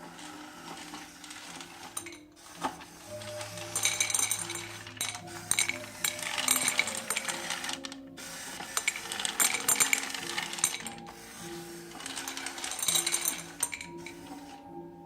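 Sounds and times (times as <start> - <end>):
background music: 0.0 - 15.0
dry pet food pellets rattling: 1.2 - 2.4, 3.1 - 8.0, 8.7 - 11.1, 11.9 - 14.2.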